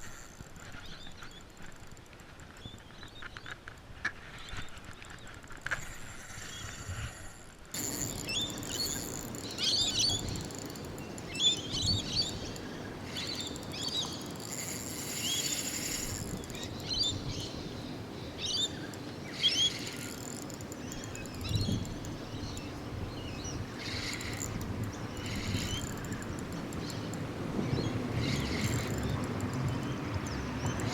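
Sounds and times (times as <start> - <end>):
outdoor background hiss: 0.0 - 30.9
birds chirping: 7.8 - 30.9.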